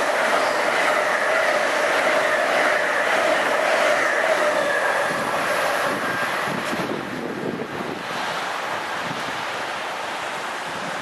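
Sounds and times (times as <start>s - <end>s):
passing train rail noise: 0.0s - 11.0s
wind buffeting microphone: 0.0s - 11.0s.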